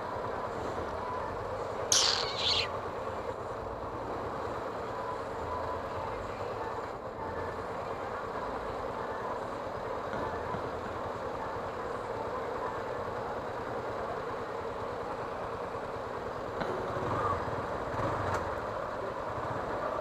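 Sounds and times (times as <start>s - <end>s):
road and traffic noise: 0.0s - 20.0s
brief high-pitched squeal: 1.9s - 2.7s.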